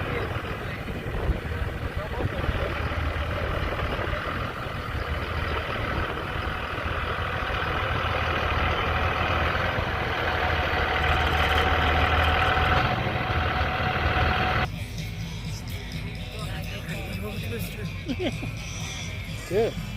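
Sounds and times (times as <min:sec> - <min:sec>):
vehicle engine low hum: 0:00.0 - 0:19.9.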